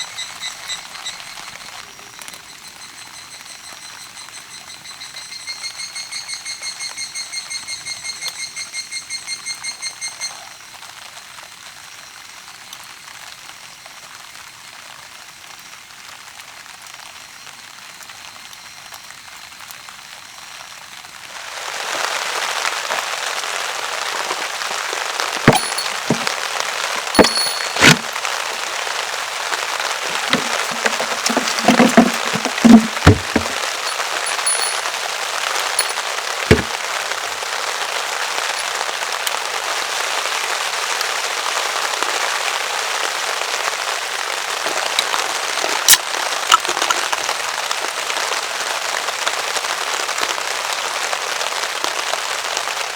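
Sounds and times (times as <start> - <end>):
sharp cracks and knocks: 30.1 - 34.9.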